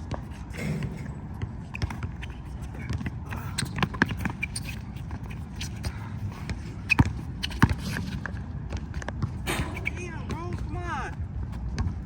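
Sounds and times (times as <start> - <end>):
basketball bouncing on court: 6.5 - 10.8, 11.6 - 12.0.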